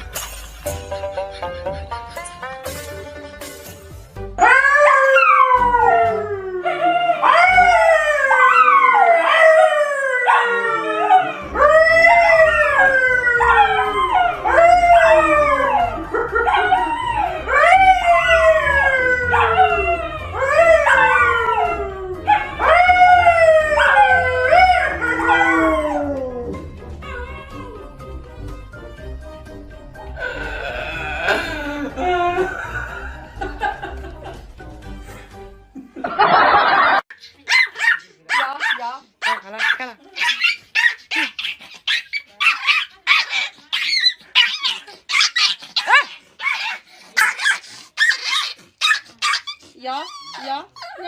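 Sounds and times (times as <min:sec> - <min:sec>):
dog howling: 0:04.4 - 0:28.0.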